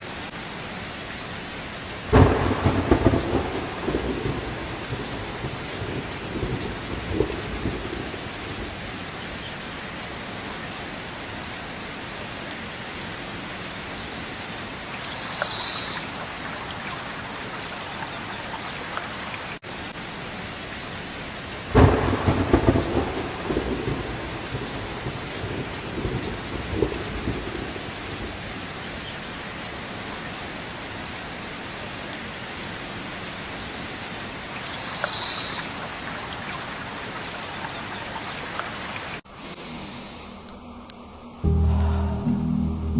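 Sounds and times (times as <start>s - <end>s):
steady rain falling: 0.0s - 41.5s
thunder claps rumbling: 2.1s - 9.7s, 21.7s - 29.1s.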